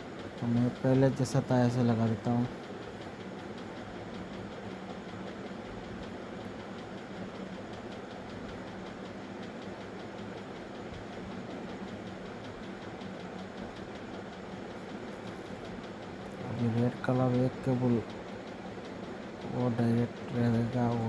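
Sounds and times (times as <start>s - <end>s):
faint fast ticking: 0.0s - 21.0s
machine running with low hum: 0.0s - 21.0s.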